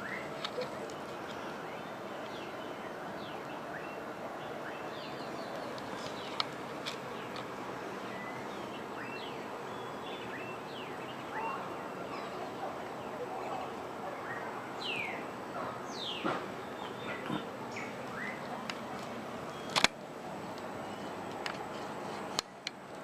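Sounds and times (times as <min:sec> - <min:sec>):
wild birds chirping: 0:00.0 - 0:22.7
background hiss: 0:00.0 - 0:23.0
sharp click: 0:19.7 - 0:20.0.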